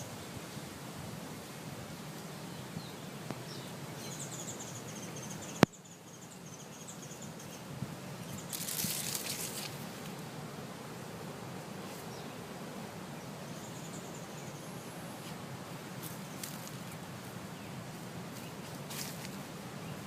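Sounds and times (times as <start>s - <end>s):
background hiss: 0.0s - 20.0s
birds chirping: 2.1s - 20.0s.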